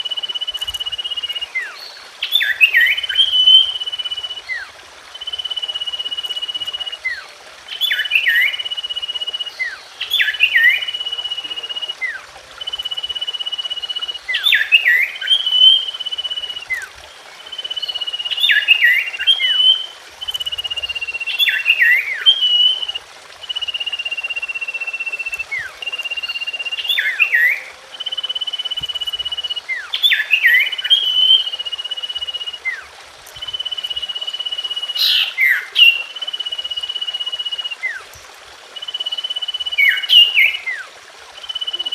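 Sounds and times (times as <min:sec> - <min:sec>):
bird singing: 0:00.0 - 0:38.2, 0:38.8 - 0:41.9.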